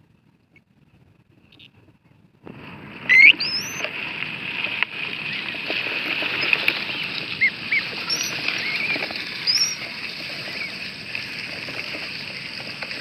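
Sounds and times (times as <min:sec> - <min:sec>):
background hiss: 0:00.8 - 0:13.0
ducklings peeping: 0:03.1 - 0:03.9, 0:05.3 - 0:11.8.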